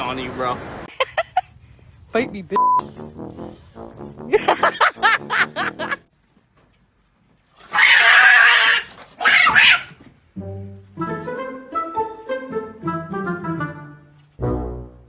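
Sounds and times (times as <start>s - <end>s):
cat crying: 7.7s - 9.9s.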